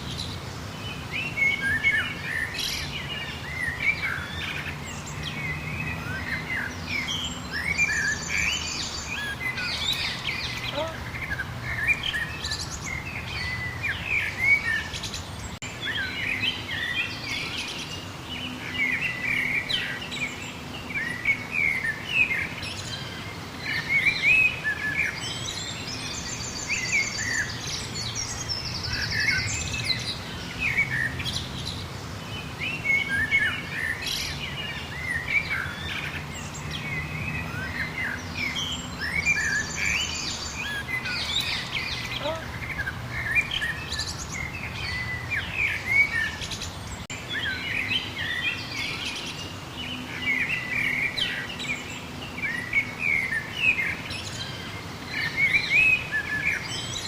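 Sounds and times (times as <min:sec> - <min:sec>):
songbirds chirping and singing: 0:00.0 - 0:57.0
high bird trill: 0:07.1 - 0:12.8, 0:38.6 - 0:44.3.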